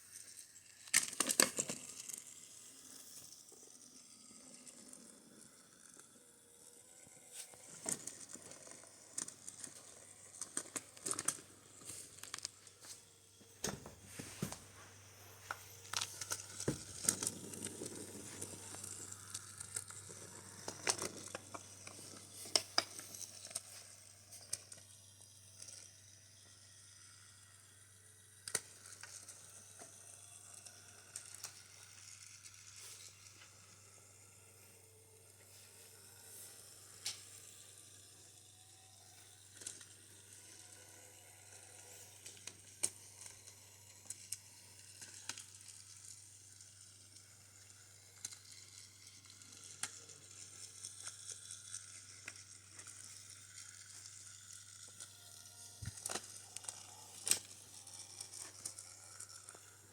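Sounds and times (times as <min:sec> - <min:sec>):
faint steady hiss: 0:00.0 - 0:59.9
wooden toy track clicking: 0:07.5 - 0:12.6.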